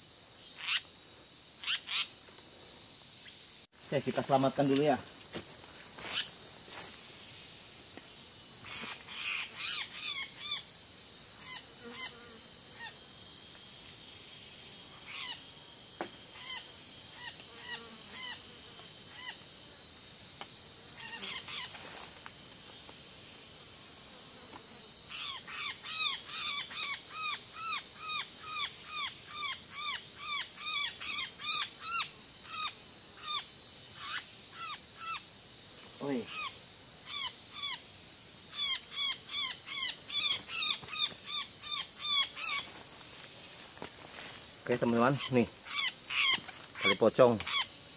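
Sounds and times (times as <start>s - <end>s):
forest insects droning: 0.0s - 47.9s.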